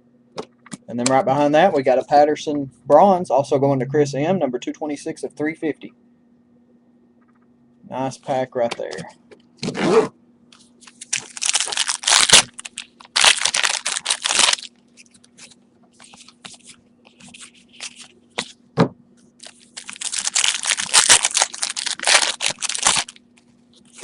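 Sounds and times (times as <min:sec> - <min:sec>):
card packs tearing open: 0:10.8 - 0:16.4, 0:19.4 - 0:23.2
wrappers crinkling: 0:10.8 - 0:18.5, 0:19.4 - 0:24.0.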